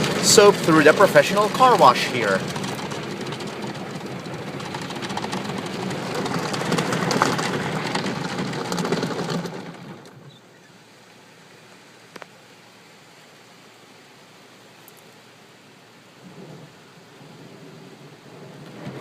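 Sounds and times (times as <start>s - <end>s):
car wash jets spraying car: 0.0s - 14.6s
faint steady hiss: 10.2s - 19.0s.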